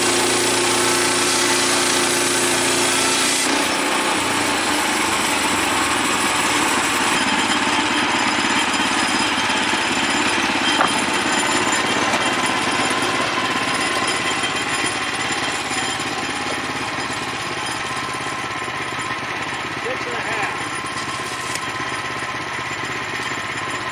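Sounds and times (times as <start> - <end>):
band sawmill cutting a log: 0.0 - 23.9.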